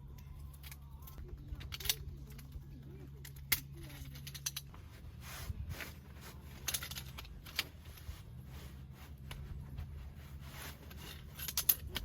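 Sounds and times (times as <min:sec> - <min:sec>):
steady low hum: 0:00.0 - 0:12.0
objects clicking and rustling: 0:00.4 - 0:05.0, 0:05.7 - 0:08.2, 0:10.5 - 0:12.0.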